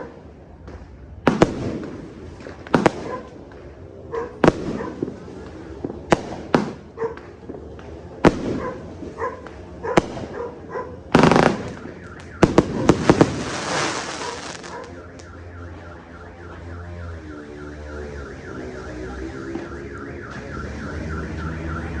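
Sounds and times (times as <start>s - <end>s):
fireworks bangs: 0.5s - 17.4s
car alarm warbling: 11.3s - 22.0s.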